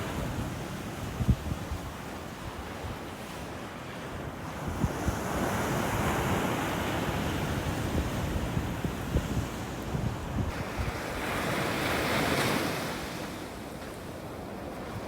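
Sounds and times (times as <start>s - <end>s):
wind buffeting microphone: 7.0s - 11.3s.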